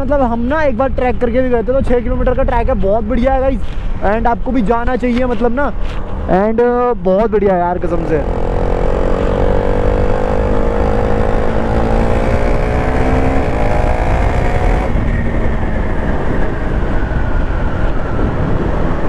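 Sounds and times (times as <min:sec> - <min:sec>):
wind rush on microphone: 0:00.0 - 0:19.0
motorcycle engine accelerating: 0:07.8 - 0:19.0.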